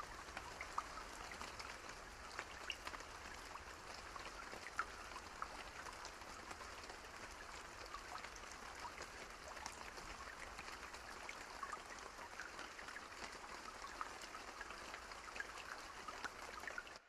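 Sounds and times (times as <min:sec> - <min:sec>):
soft steady rain: 0:00.0 - 0:17.0.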